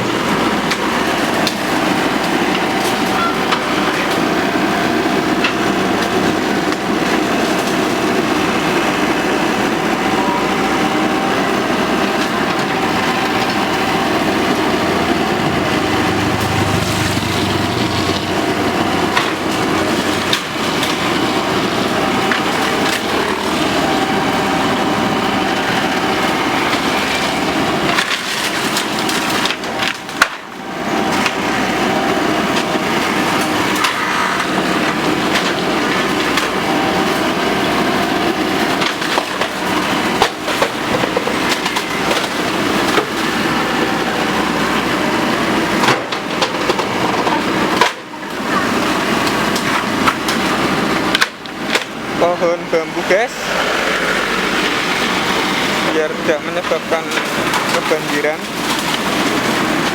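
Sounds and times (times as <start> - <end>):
excavator engine: 0.0 - 59.9
bamboo cracking and splintering: 25.6 - 31.5.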